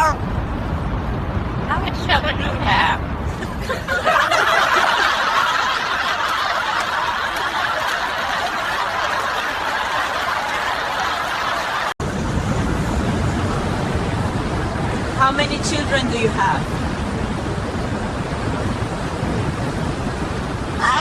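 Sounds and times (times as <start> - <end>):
people laughing: 3.3 - 11.9.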